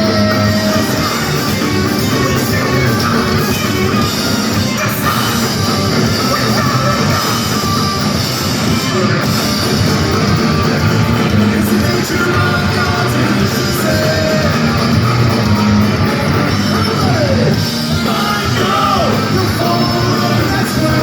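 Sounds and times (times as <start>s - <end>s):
bass guitar: 0.0s - 21.0s
distorted electric guitars: 0.0s - 21.0s
drums: 0.0s - 21.0s
shouted vocals: 11.4s - 21.0s.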